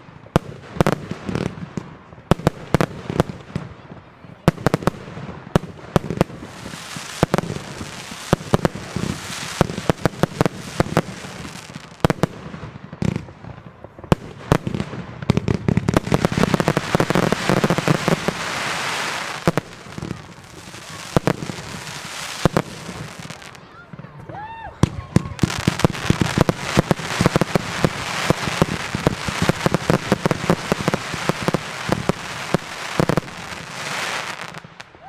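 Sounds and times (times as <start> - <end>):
firework bangs: 0.0 - 35.0
firework crackling hiss: 6.0 - 12.5, 14.3 - 23.6, 25.1 - 34.9.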